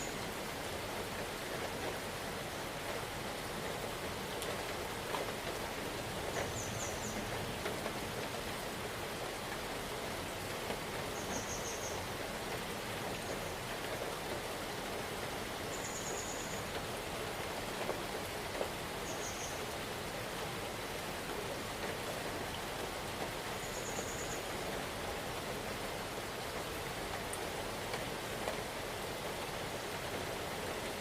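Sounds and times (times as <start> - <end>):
rain falling in forest: 0.0 - 31.0
rain drop taps: 17.8 - 18.8, 26.6 - 28.7.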